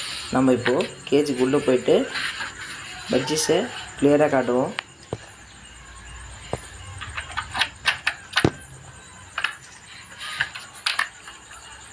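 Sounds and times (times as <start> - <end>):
sharp knocks: 8.4 - 8.7.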